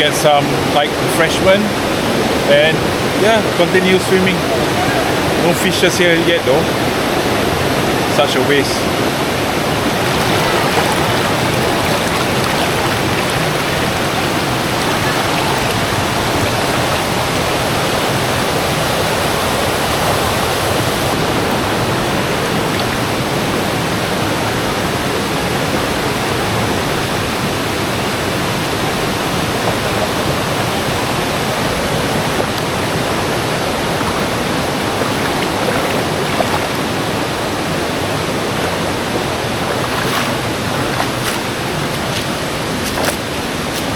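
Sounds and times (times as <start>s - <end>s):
river rushing over rocks: 0.0s - 43.9s.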